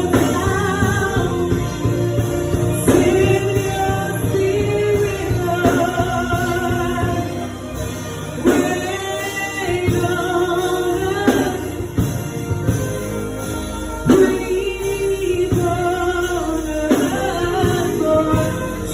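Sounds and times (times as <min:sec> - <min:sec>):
instrumental accompaniment: 0:00.0 - 0:18.9
voices singing with vibrato: 0:00.0 - 0:18.9.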